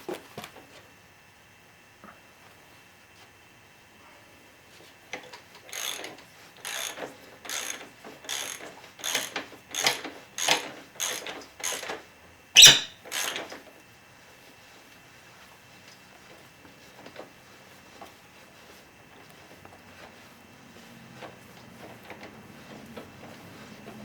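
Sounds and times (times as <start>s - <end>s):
socket ratchet clicking: 5.7s - 12.0s, 12.6s - 13.5s
sharp loud click: 12.6s - 12.9s.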